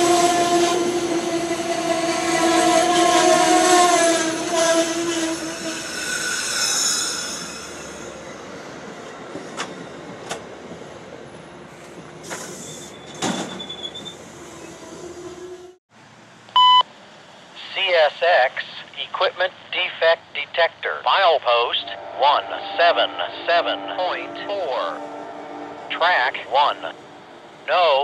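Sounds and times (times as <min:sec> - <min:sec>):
train horn: 0:00.0 - 0:05.8, 0:21.7 - 0:27.3
train rolling noise: 0:00.0 - 0:15.8
steel wheels squealing: 0:02.4 - 0:08.8, 0:12.2 - 0:15.8.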